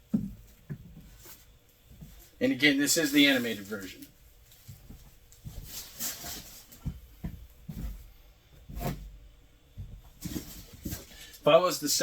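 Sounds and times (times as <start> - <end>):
helmet handling knocks and rubs: 4.6 - 11.2.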